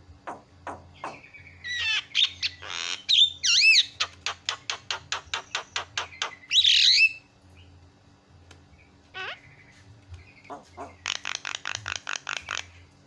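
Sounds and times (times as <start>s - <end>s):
myna calling: 9.1s - 12.8s.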